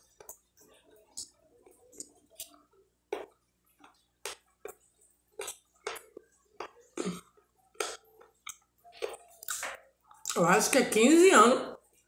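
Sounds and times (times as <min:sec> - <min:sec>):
person chewing with wet mouth smacks: 0:01.1 - 0:10.4.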